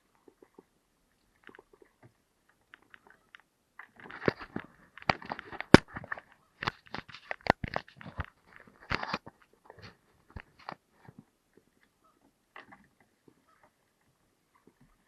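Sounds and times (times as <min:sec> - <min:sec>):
crunching and clicking: 0:02.5 - 0:10.8.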